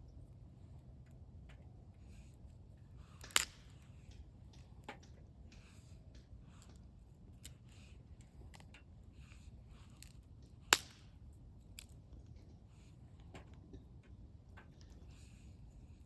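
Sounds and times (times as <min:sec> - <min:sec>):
wood fire crackling: 0:03.2 - 0:03.9, 0:10.7 - 0:11.2.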